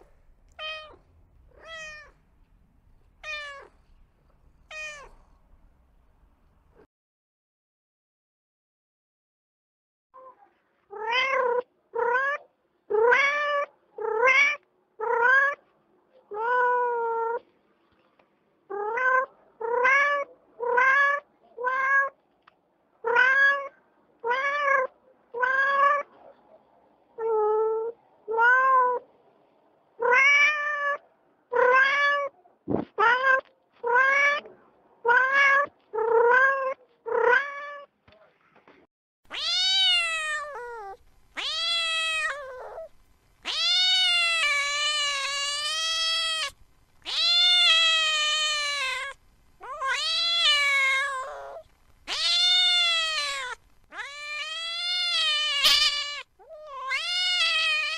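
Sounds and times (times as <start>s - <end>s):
cat meowing: 0.0s - 2.2s, 3.2s - 3.8s, 4.7s - 5.2s, 10.2s - 15.6s, 16.3s - 17.4s, 18.7s - 22.2s, 23.0s - 26.1s, 30.0s - 32.4s, 33.0s - 37.9s, 39.3s - 57.9s.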